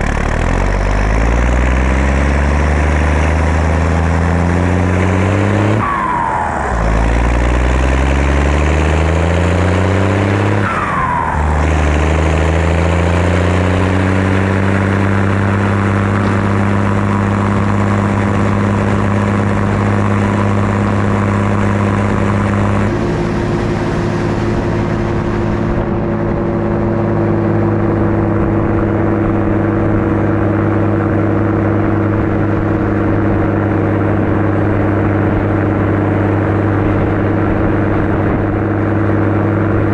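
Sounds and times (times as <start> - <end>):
tractor diesel engine under load: 0.0 - 39.9
falling turbo whistle: 5.8 - 8.1, 10.5 - 13.1, 22.6 - 27.2.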